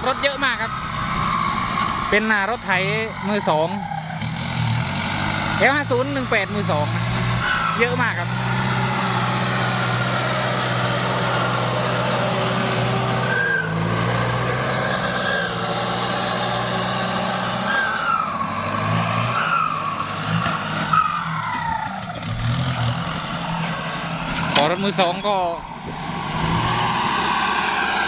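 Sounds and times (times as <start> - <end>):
tractor diesel engine running: 0.0 - 28.0
turbo whistle: 11.2 - 15.7, 17.5 - 20.0.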